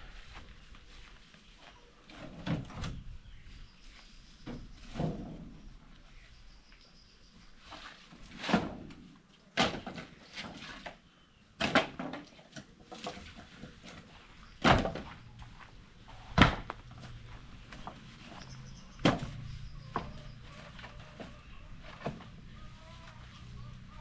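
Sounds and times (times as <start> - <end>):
sharp knocks and thuds: 14.6 - 20.9.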